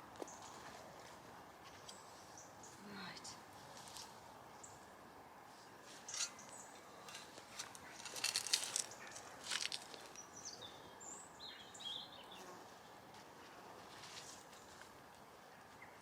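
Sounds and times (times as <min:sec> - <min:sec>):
rustles and scrapes: 0:03.5 - 0:04.3, 0:05.4 - 0:10.2, 0:13.4 - 0:15.0
bird chirping: 0:06.1 - 0:12.5.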